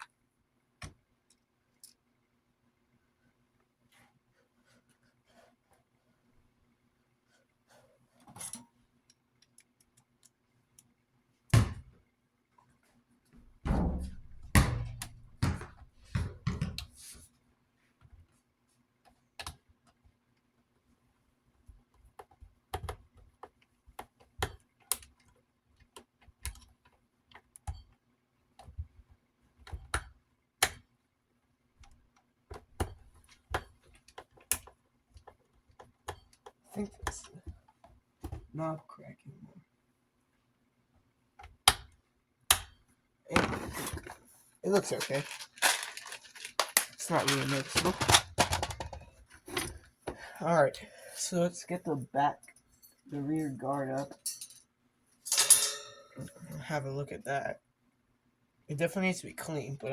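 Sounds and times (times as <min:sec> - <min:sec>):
metal desk fan being handled: 0:43.3 - 0:49.8, 0:53.8 - 0:54.6, 0:55.2 - 0:56.5.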